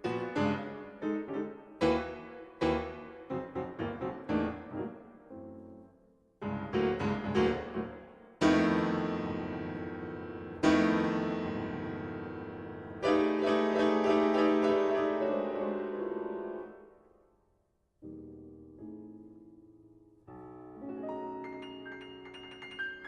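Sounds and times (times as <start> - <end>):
solo piano music: 0.0 - 17.0, 18.0 - 23.0.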